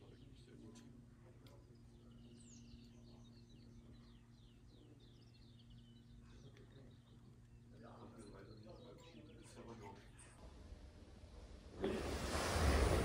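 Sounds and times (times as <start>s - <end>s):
songbirds chirping: 0.0s - 10.4s
low steady hum: 0.0s - 13.0s.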